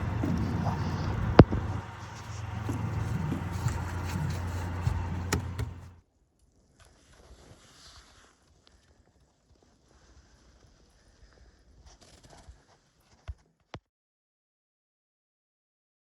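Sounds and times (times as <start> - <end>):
low engine hum: 0.0 - 6.0.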